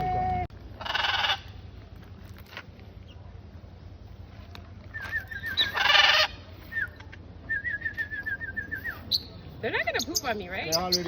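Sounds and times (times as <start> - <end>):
bird squawking: 0.8 - 1.5, 5.1 - 6.9.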